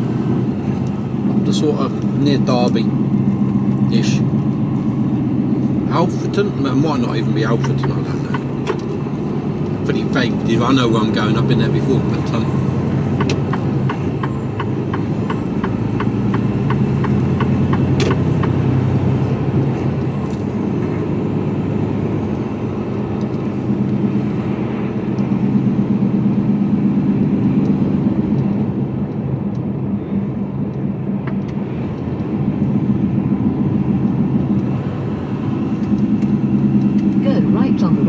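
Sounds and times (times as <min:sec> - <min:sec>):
lorry diesel engine running: 0:00.0 - 0:38.0
regular ticking: 0:00.8 - 0:18.6.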